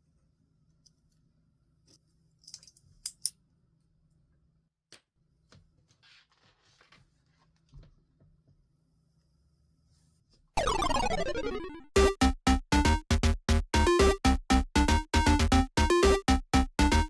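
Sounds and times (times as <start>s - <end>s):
paper rustling: 5.8s - 7.9s.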